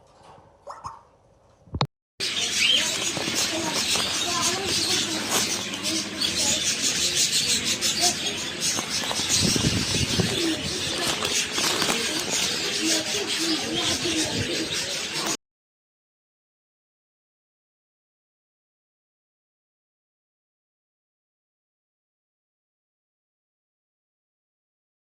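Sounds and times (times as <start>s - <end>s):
cockatiel chattering: 2.2s - 15.4s.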